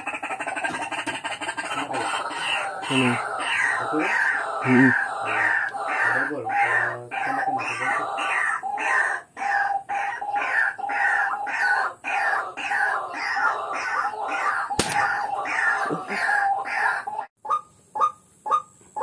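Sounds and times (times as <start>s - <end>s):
bird's harsh falling calls: 14.4s - 16.4s
air rifle shot: 14.8s - 15.2s.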